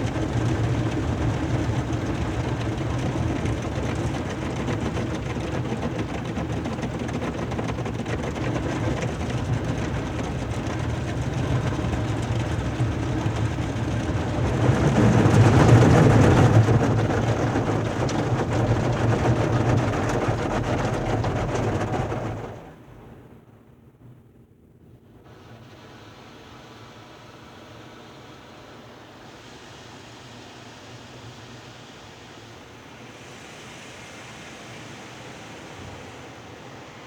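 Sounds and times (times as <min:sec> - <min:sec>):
car wash machinery running: 0:00.0 - 0:23.4.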